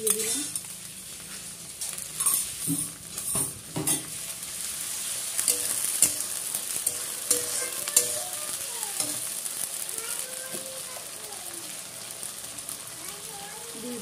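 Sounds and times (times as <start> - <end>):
onions sizzling in hot oil: 0.0 - 14.0
spatula scraping and knocking pan: 2.2 - 4.2, 5.4 - 8.4.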